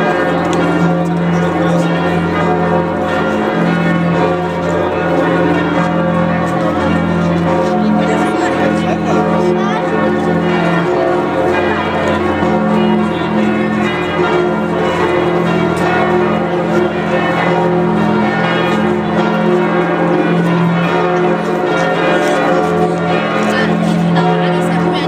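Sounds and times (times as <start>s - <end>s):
large church bells pealing: 0.0s - 25.0s.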